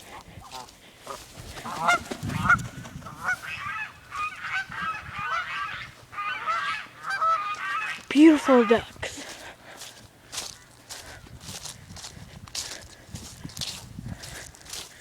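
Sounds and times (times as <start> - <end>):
geese honking: 0.5 - 9.2.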